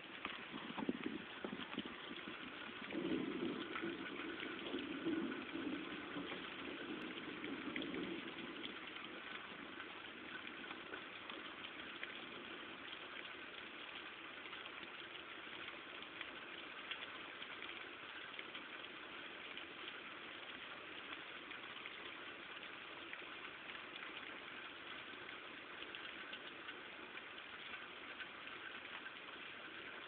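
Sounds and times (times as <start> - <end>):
low rumble: 0.0 - 9.7
heavy rain falling: 0.0 - 11.5.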